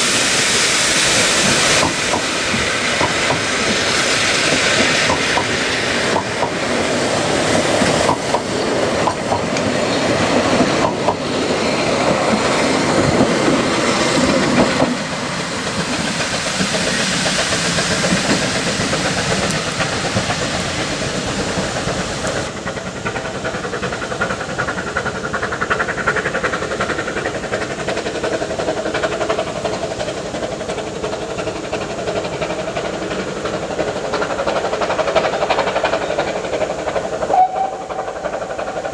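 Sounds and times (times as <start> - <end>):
steam hissing: 0.0 - 38.9
train wheels clattering on rails: 0.0 - 38.9.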